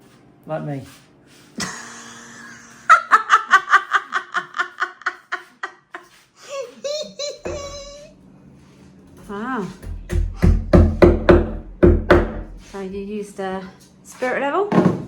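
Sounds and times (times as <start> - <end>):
person laughing hard: 1.6 - 8.1
high-pitched giggle: 3.4 - 8.1.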